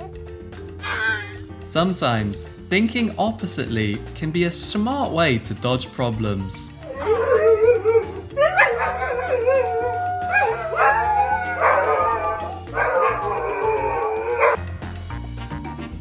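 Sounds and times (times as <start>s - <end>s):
background music: 0.0s - 16.0s
dog howling and whining: 6.8s - 14.6s.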